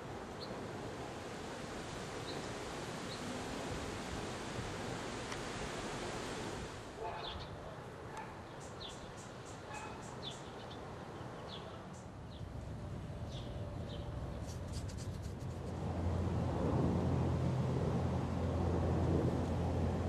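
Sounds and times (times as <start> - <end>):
small birds chirping: 8.2 - 12.5
low outdoor rumble: 12.4 - 20.0.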